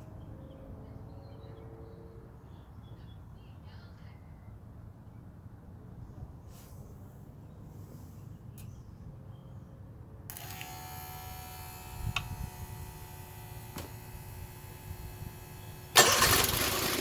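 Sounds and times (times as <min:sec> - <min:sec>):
electric motor buzz: 0:10.3 - 0:17.0.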